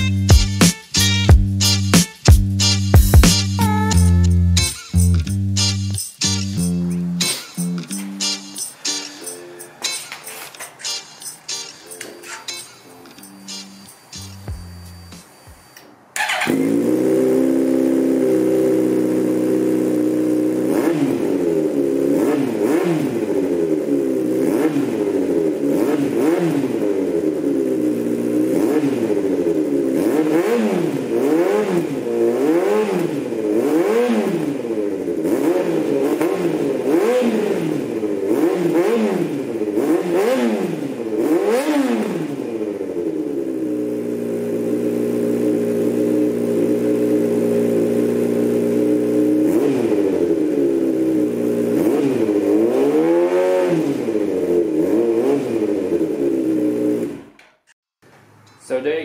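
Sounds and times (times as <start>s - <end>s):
motorcycle engine revving: 16.2s - 57.4s.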